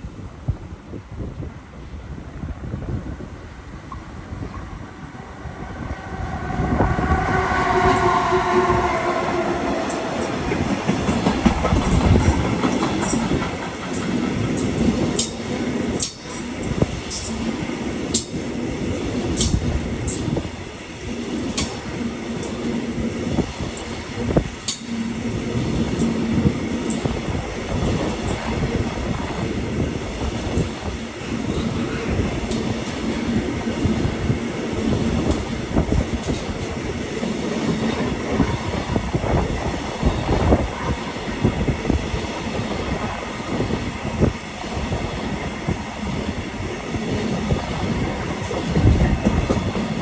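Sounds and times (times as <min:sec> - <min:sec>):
train wheels rumbling on rails: 0:00.0 - 0:50.0
train horn: 0:05.0 - 0:12.3.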